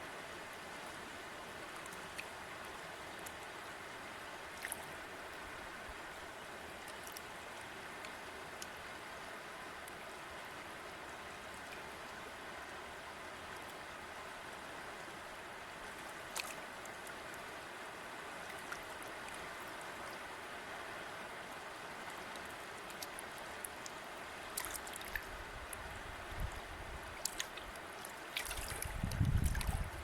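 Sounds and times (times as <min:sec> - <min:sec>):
river flowing: 0:00.0 - 0:30.0
small splashes and drips: 0:04.5 - 0:05.0, 0:06.8 - 0:07.4, 0:15.8 - 0:17.5, 0:18.4 - 0:20.2, 0:22.1 - 0:30.0.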